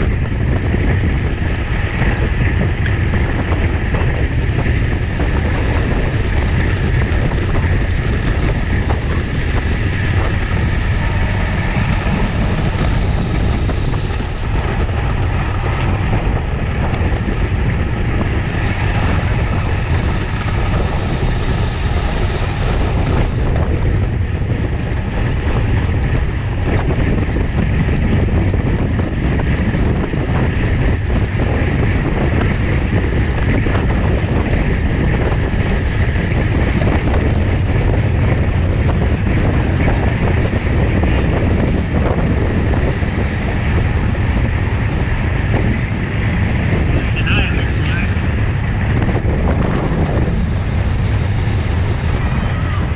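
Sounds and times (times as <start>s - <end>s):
wind rushing over microphone: 0.0s - 52.9s.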